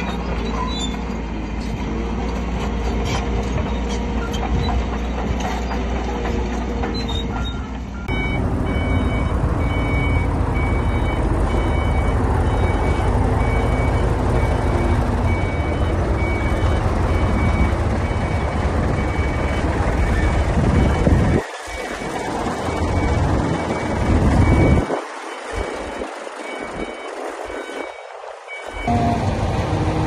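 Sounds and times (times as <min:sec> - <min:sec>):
diesel engine rumble: 0:00.0 - 0:30.0
back-up alarm beeping: 0:08.0 - 0:21.1, 0:25.6 - 0:29.4.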